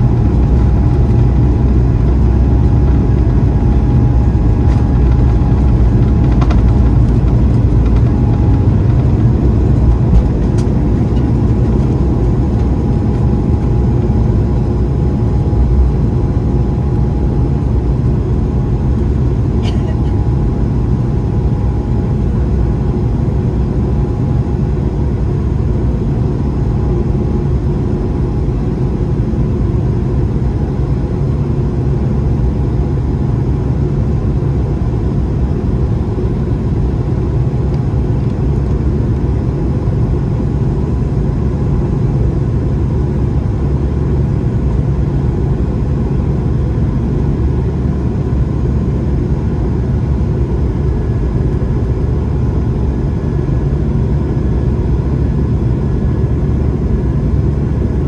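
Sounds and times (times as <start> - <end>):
jet engines rumbling: 0.0 - 33.5.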